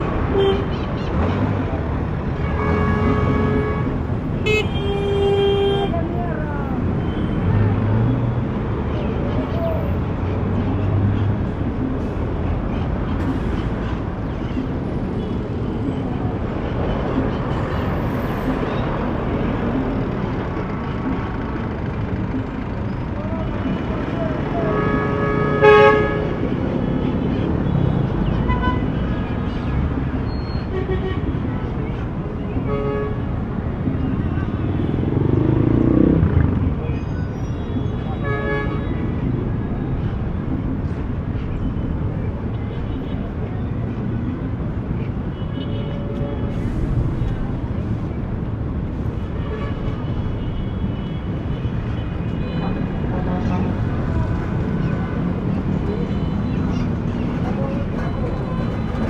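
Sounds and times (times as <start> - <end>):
cars passing: 0.0 - 59.0
traffic engines rumbling: 0.0 - 59.0
tyres on road: 0.0 - 59.0
vehicle horn toot: 2.4 - 6.0, 24.6 - 26.4.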